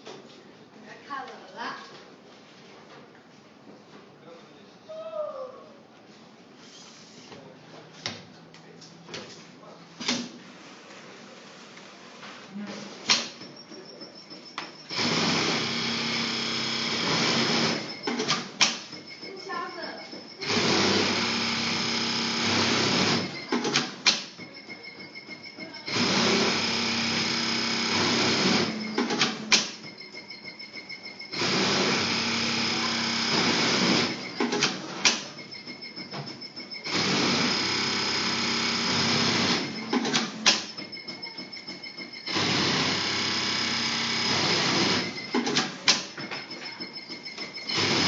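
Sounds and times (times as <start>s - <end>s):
sewing machine stitching: 14.9s - 18.6s, 20.4s - 24.1s, 25.8s - 29.7s, 31.3s - 35.2s, 36.8s - 40.7s, 42.3s - 46.1s, 47.6s - 48.0s.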